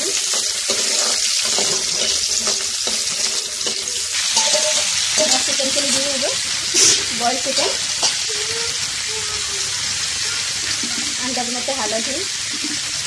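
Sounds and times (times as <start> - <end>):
food sizzling in hot oil: 0.0 - 13.0
spatula scraping pan: 0.2 - 8.3.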